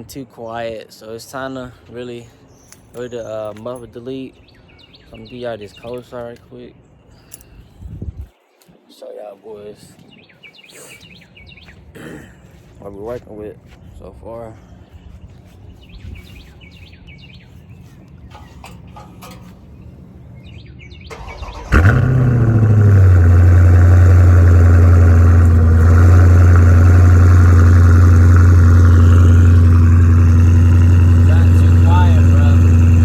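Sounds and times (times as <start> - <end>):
birds chirping: 1.8 - 11.9, 14.4 - 33.0
car engine fast idle: 21.1 - 33.0
car engine starting with bark: 21.1 - 33.0.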